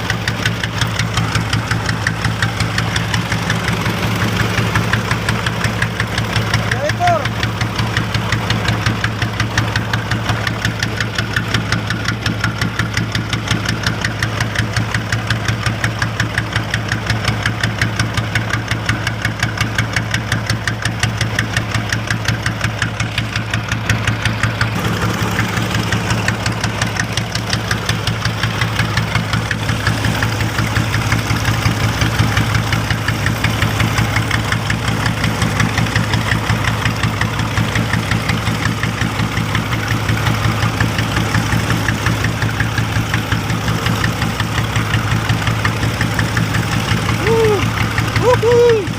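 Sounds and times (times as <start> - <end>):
boat engine idling: 0.0 - 48.9.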